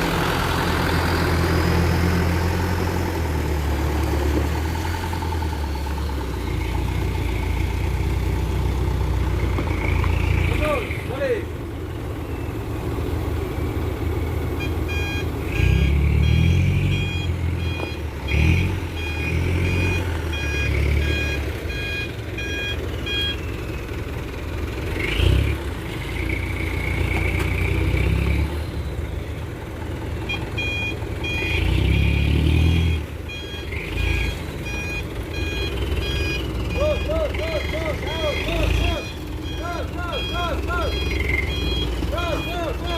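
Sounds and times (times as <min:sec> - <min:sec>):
truck engine running: 0:00.0 - 0:42.9
reversing beeper: 0:14.5 - 0:23.7, 0:30.2 - 0:42.9.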